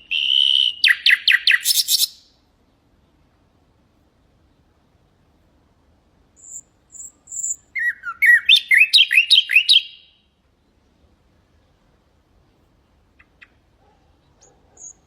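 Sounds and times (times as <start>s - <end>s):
nightingale singing: 0.0s - 2.4s, 6.3s - 10.9s, 13.0s - 15.0s.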